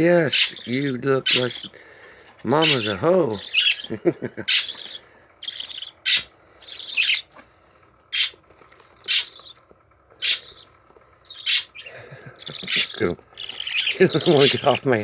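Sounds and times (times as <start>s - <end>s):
budgerigars chirping: 0.0s - 7.3s, 8.1s - 15.0s.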